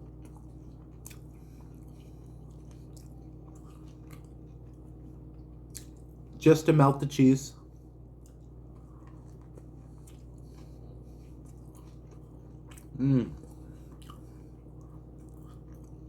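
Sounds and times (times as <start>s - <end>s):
person chewing: 0.0s - 6.4s, 8.0s - 16.0s
person humming briefly: 12.9s - 13.4s.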